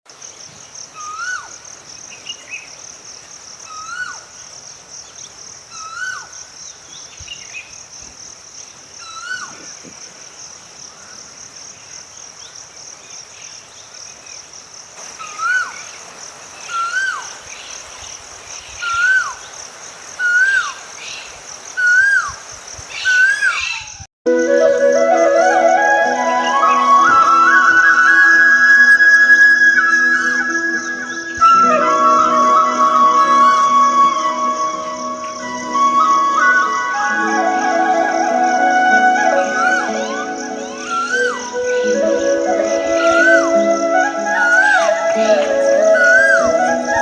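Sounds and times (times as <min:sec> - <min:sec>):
insects trilling: 0:00.1 - 0:47.0
bird whistled call: 0:01.0 - 0:01.5, 0:03.7 - 0:04.2, 0:15.2 - 0:15.8, 0:16.7 - 0:17.3, 0:18.8 - 0:19.4, 0:20.2 - 0:20.8, 0:21.8 - 0:22.4, 0:23.0 - 0:47.0.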